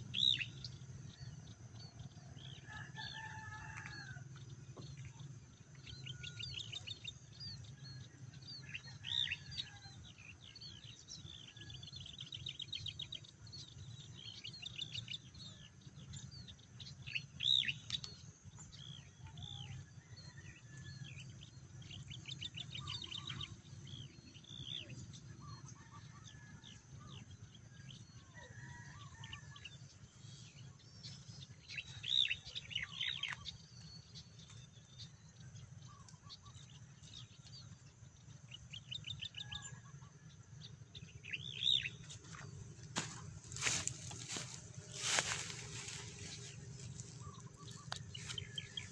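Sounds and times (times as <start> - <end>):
small birds chirping and trilling: 0.0 - 48.9
low steady rumble: 28.9 - 48.9.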